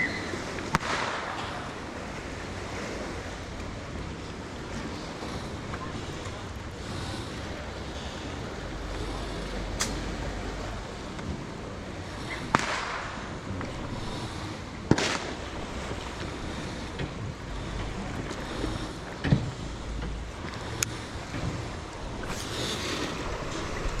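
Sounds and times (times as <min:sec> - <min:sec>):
water noise: 0:00.0 - 0:24.0
wind: 0:00.0 - 0:24.0
fireworks bangs: 0:14.9 - 0:15.4.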